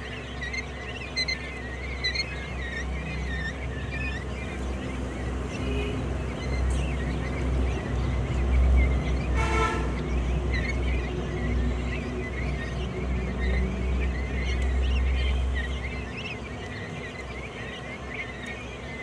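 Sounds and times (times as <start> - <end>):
quail chirping: 0.0 - 19.0
short honk: 9.4 - 10.0.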